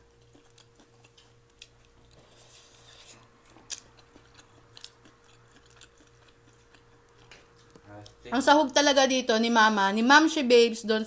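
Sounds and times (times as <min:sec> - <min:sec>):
faint chewing: 0:00.0 - 0:08.2
low steady hum: 0:00.0 - 0:11.0.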